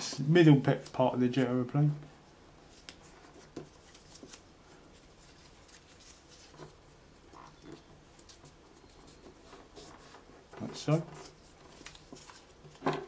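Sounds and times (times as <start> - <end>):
paper rustling: 2.7 - 6.9, 7.5 - 13.0.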